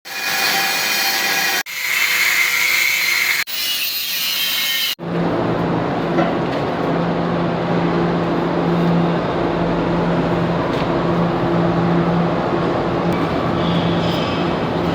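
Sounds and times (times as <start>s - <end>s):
power tool cutting steel pipe: 0.1s - 5.0s
low machine hum: 5.0s - 14.9s.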